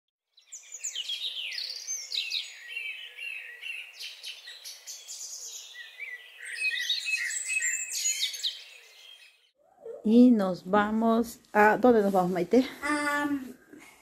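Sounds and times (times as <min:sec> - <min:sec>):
small birds chirping: 0:00.3 - 0:12.0.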